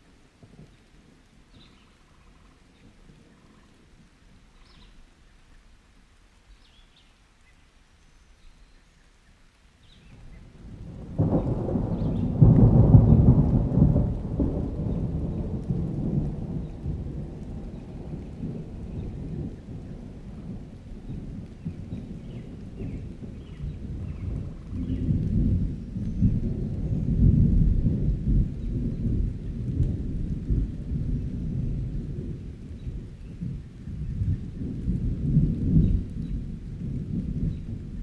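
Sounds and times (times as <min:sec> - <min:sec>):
light steady rain: 0:00.0 - 0:38.0
rolling thunder: 0:10.0 - 0:38.0.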